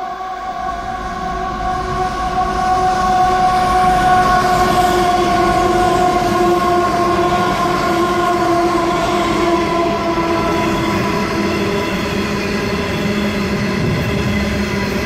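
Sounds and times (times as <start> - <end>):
locomotive engine: 0.0 - 15.0
steady high-pitched tone: 0.0 - 15.0
train wagons rolling: 3.4 - 15.0.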